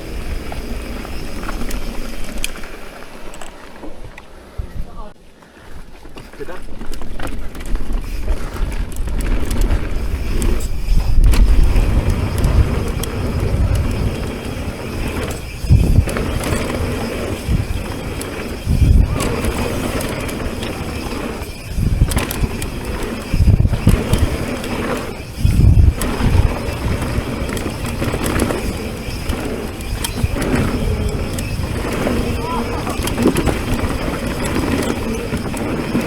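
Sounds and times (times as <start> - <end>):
bike rolling and rattling: 0.0 - 36.0
wind buffeting microphone: 7.7 - 36.0.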